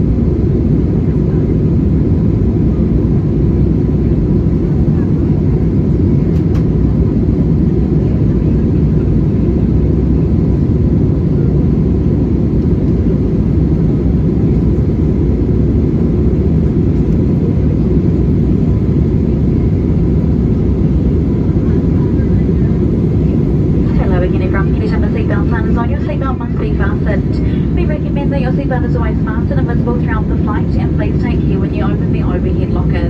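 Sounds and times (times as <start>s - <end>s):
airplane cabin engine rumble: 0.0s - 33.0s.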